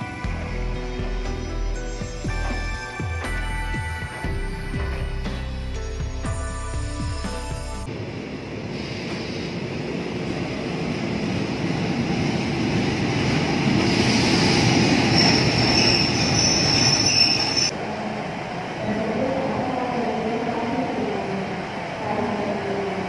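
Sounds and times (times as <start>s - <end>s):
high steel-wheel squeal: 13.9s - 17.7s.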